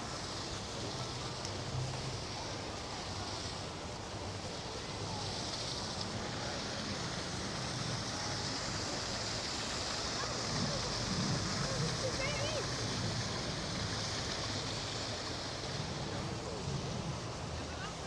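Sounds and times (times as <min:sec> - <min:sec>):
steady rushing outdoor ambience: 0:00.0 - 0:18.0.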